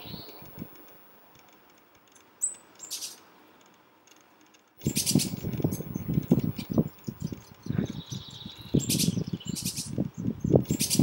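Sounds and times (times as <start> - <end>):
small bird chirp: 2.1 - 3.3, 4.8 - 11.0.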